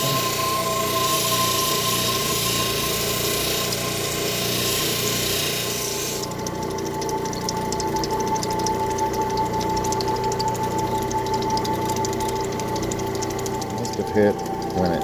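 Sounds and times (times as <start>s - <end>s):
stone grinding hiss on wheel: 0.0s - 6.2s
machine motor hum: 0.0s - 15.0s.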